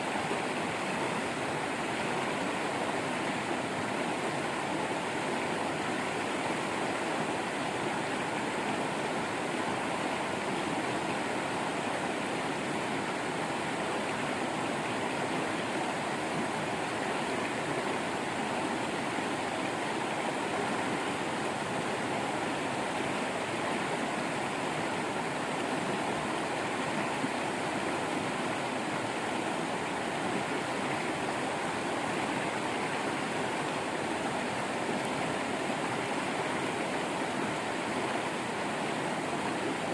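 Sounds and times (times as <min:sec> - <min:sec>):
waterfall and stream rushing: 0:00.0 - 0:39.9.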